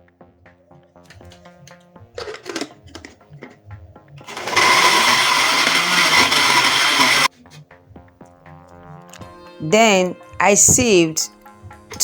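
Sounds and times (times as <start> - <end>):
electric blender running: 4.2 - 7.3.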